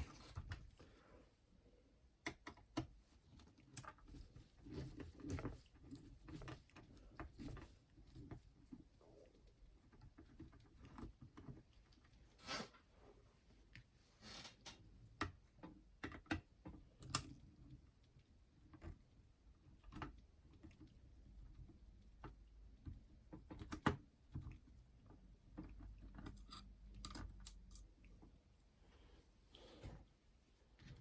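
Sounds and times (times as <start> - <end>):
small clicks and taps: 2.2 - 12.1, 14.6 - 28.4.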